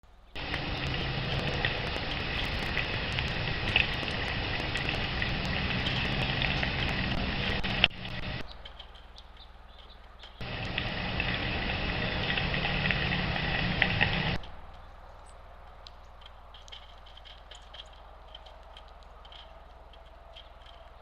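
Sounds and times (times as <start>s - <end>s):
low background hum: 0.0s - 21.0s
small birds chirping: 0.1s - 12.3s, 14.3s - 21.0s.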